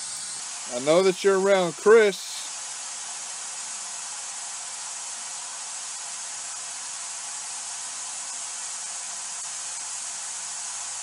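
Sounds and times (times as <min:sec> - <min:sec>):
white noise hiss: 0:00.0 - 0:11.0.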